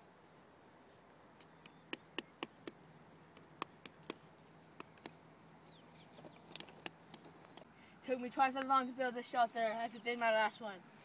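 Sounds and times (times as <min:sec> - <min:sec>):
faint outdoor background noise: 0:00.0 - 0:11.0
wooden sticks clicking and knocking: 0:06.2 - 0:07.2.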